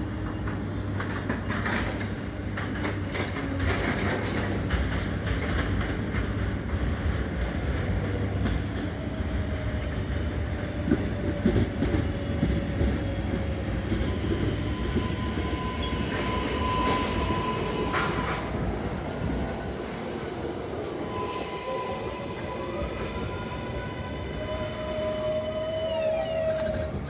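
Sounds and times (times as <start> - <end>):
subway train rumbling: 0.0 - 27.0.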